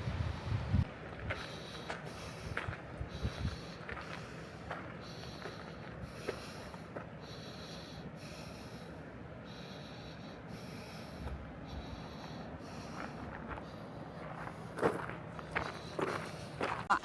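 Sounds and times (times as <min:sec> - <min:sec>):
footsteps crunching on trail: 0:00.8 - 0:07.2, 0:11.2 - 0:17.0.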